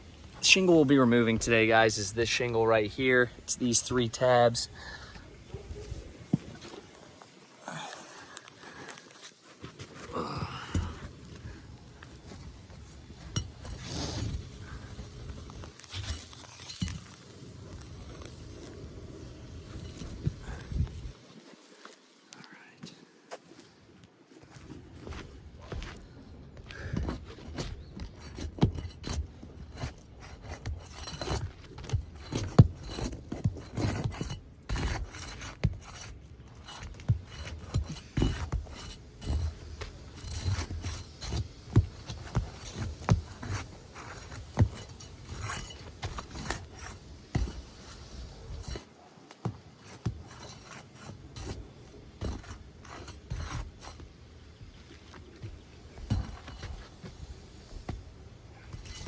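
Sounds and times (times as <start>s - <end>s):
scraping roof shingles: 26.7s - 57.3s.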